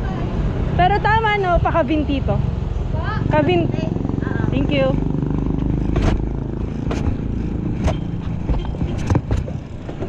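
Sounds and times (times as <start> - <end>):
sharp clicks and knocks: 5.8 - 10.0.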